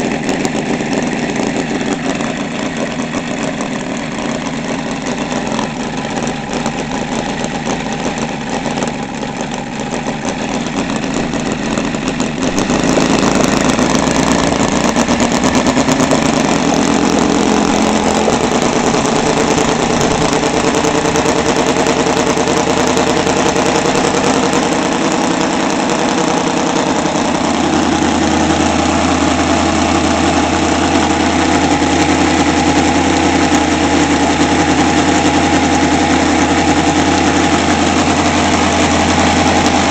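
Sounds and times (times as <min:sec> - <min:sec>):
radial engine running: 0:00.0 - 0:39.9.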